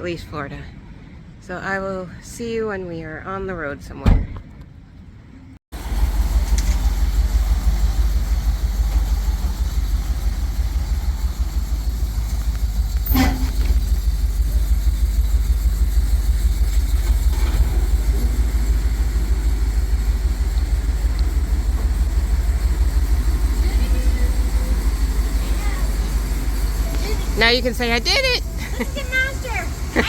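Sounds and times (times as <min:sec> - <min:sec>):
truck engine and road rumble: 0:00.0 - 0:30.0.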